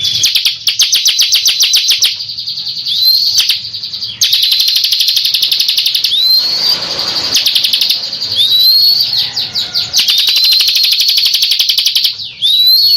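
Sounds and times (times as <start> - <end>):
bird calling sharp notes: 0.0 - 12.9
bird rising whistled notes: 4.2 - 12.9.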